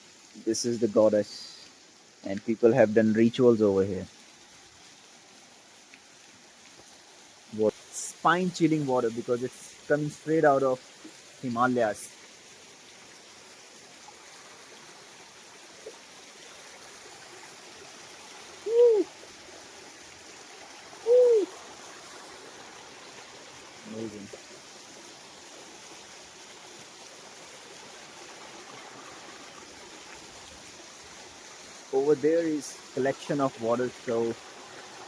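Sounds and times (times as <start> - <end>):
waterfall running: 0.0 - 35.0
hoot-like cries: 18.6 - 19.2, 21.0 - 21.6.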